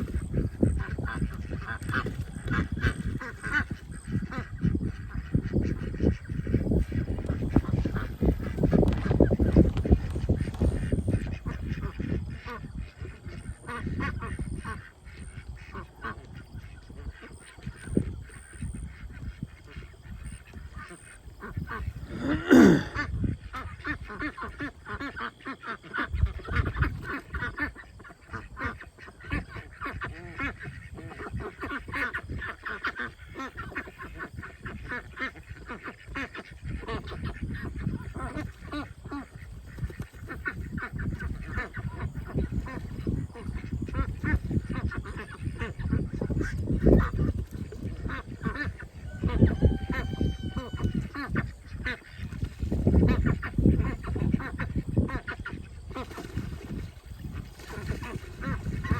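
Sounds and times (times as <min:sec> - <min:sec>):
ducks quacking: 0:00.0 - 0:58.9
loud duck call falling in pitch: 0:49.1 - 0:51.4.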